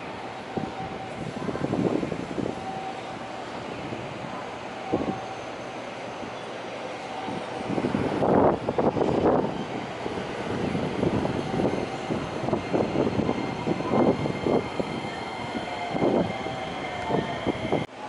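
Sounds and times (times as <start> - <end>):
train rumbling on track: 0.0 - 18.0.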